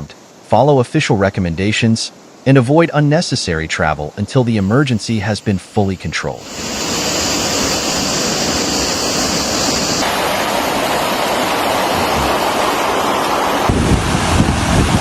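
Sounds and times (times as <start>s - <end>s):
wind gusting on microphone: 6.2s - 15.0s
floodwater rushing: 6.3s - 15.0s.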